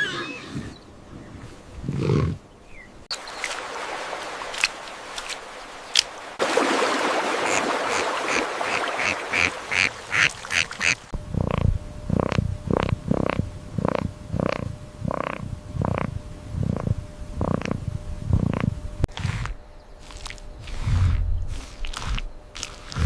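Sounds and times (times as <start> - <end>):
animal calls: 7.5 - 19.6.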